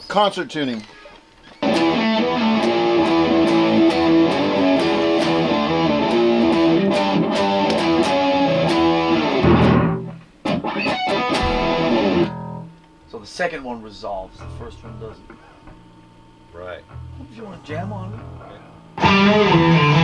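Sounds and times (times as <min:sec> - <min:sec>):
bass guitar: 0:01.6 - 0:12.8, 0:14.3 - 0:15.2, 0:16.7 - 0:20.0
distorted electric guitar riff: 0:01.6 - 0:12.9, 0:16.8 - 0:20.0.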